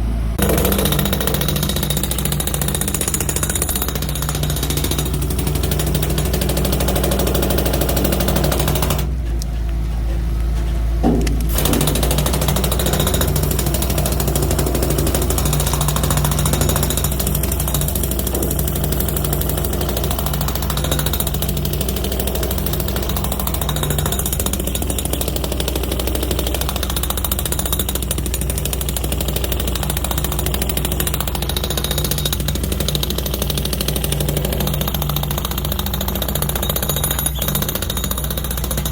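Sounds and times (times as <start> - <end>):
chipping hammer on concrete: 0.4 - 9.1, 11.5 - 38.9.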